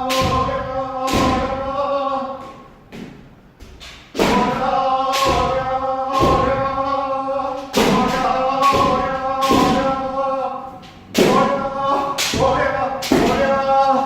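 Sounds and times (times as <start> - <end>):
thuds of strikes: 0.0 - 1.7, 3.0 - 7.1, 7.7 - 10.1, 11.0 - 13.6
stamping feet: 0.0 - 14.0.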